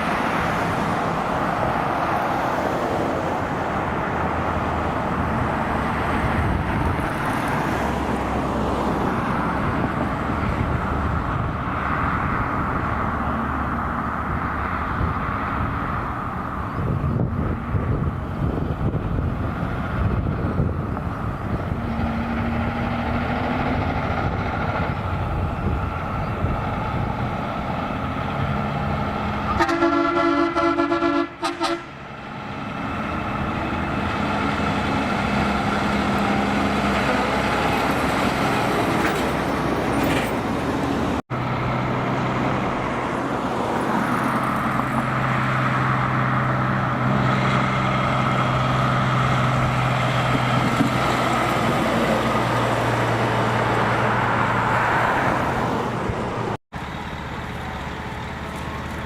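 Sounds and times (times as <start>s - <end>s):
heavy trucks driving past: 0.0s - 59.0s
truck horn: 29.4s - 32.0s.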